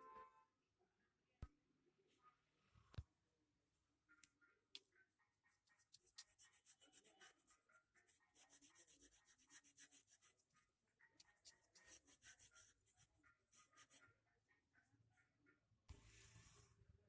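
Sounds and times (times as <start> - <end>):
hand scratching strokes drawing: 5.5 - 14.1, 16.0 - 16.7.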